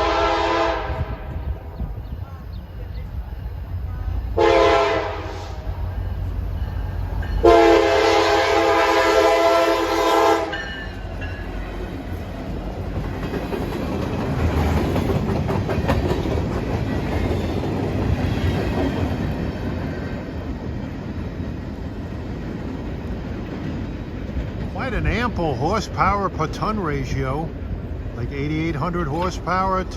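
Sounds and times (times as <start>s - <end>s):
locomotive air horn: 0.0s - 1.5s, 4.4s - 5.8s, 7.4s - 10.7s
locomotive engine rumble: 0.0s - 29.9s
train wheels clicking on rail joints: 10.5s - 28.0s.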